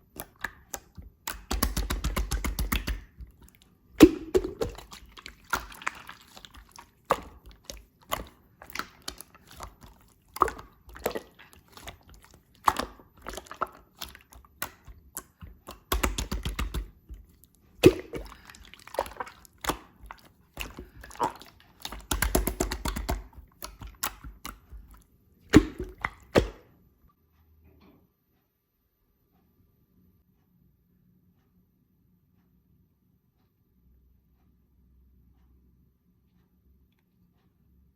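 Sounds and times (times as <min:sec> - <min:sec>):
slime squished by hand: 0:00.0 - 0:26.6.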